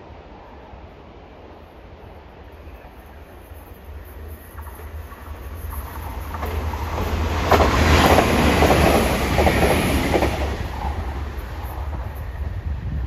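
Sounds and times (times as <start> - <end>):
train rumbling past on rails: 0.0 - 13.0.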